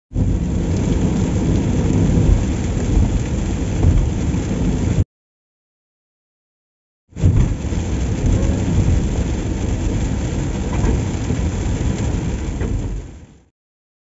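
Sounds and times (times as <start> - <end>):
deep continuous rumble: 0.1 - 5.0, 7.2 - 13.5
heavy rain falling: 0.1 - 5.0, 7.2 - 13.5.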